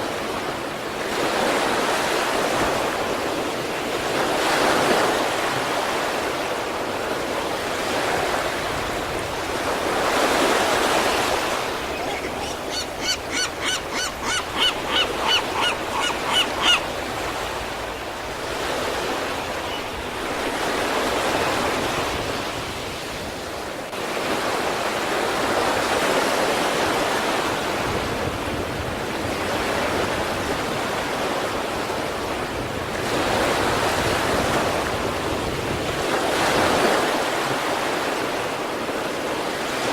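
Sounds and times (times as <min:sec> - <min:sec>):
surf washing in: 0:00.0 - 0:39.9
short pitched calls: 0:11.8 - 0:16.9.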